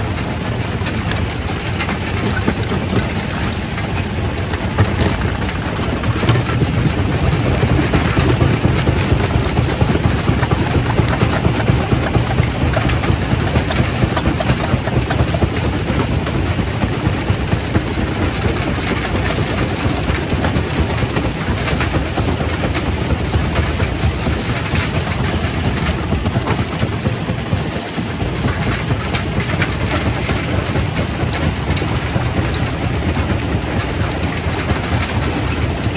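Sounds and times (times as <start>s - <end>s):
rock crusher rumbling: 0.0s - 27.0s.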